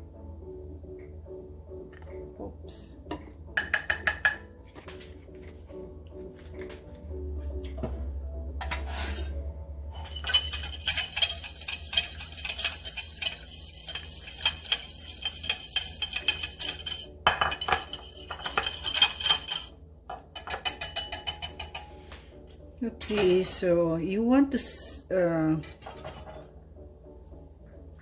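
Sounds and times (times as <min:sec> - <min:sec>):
utensil clinking against bowl: 0:03.1 - 0:04.5, 0:09.9 - 0:22.0.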